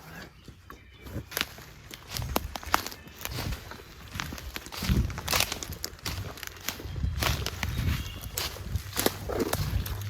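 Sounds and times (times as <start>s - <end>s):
hurried footsteps crunching: 0.0s - 10.0s
low rumble on microphone: 4.2s - 10.0s.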